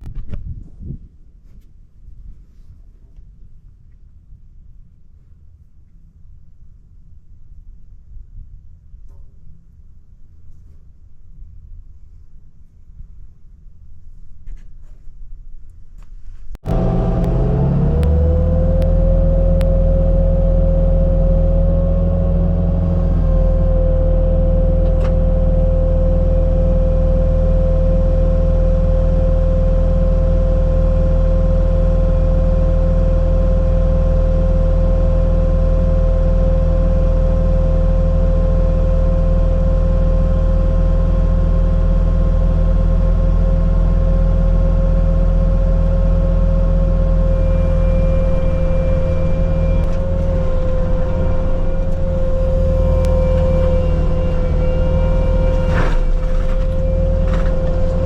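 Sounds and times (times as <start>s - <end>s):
diesel engine drone: 16.6s - 58.0s
mulcher whine: 16.6s - 58.0s.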